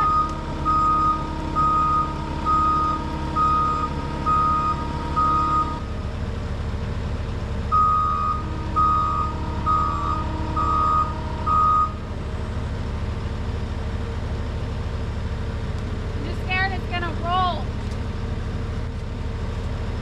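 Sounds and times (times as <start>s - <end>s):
backup alarm beeping: 0.0s - 5.8s, 7.7s - 12.0s
diesel engine running: 0.0s - 20.0s.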